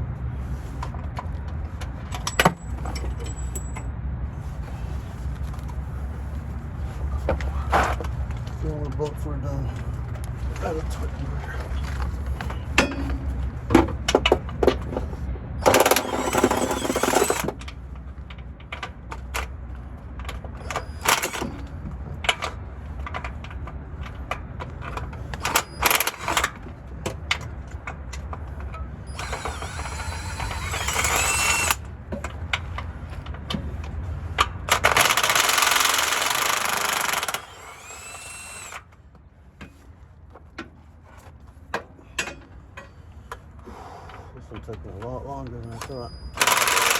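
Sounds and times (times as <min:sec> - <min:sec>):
metal tools knocking and clanking: 0:12.4 - 0:15.0, 0:41.7 - 0:43.0
impact wrench bursts: 0:15.6 - 0:17.6, 0:20.6 - 0:21.6, 0:25.4 - 0:26.6, 0:29.1 - 0:31.9, 0:34.7 - 0:38.9, 0:46.4 - 0:46.9.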